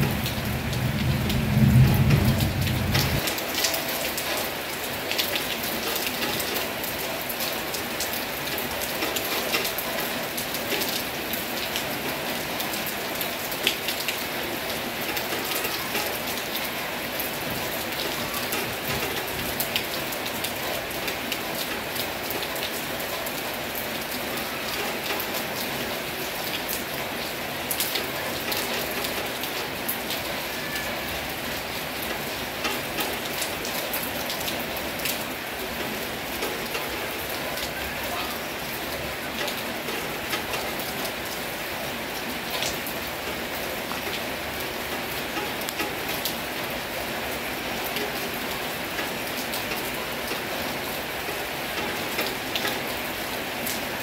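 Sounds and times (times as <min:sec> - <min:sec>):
heavy rain falling: 0:00.0 - 0:54.0
deep rumble: 0:00.1 - 0:03.2.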